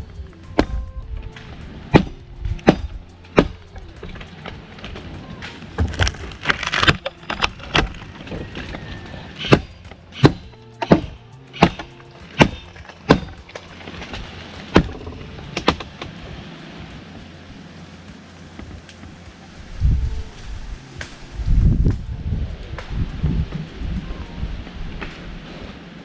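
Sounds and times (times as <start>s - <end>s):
axe chopping tree limb: 0.5s - 0.8s, 1.9s - 4.3s, 5.8s - 8.0s, 9.4s - 16.1s.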